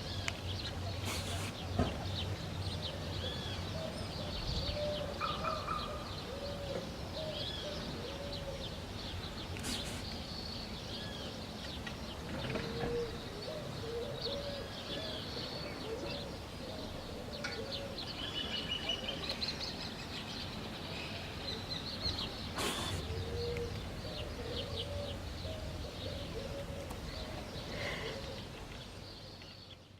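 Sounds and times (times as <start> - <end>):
dove cooing: 3.2 - 8.7, 12.5 - 18.1, 22.6 - 28.5.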